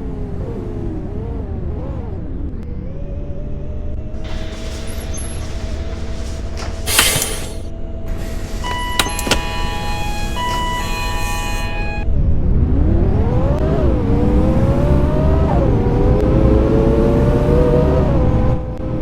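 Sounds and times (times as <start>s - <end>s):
bus engine pulling away: 0.0s - 19.0s
electronic beeps: 8.4s - 12.1s
clicks: 8.9s - 9.6s.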